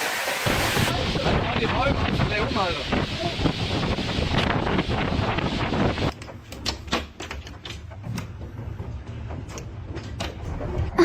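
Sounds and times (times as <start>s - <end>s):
wind buffeting microphone: 0.5s - 6.2s
sharp knocks and rattles: 6.0s - 11.0s.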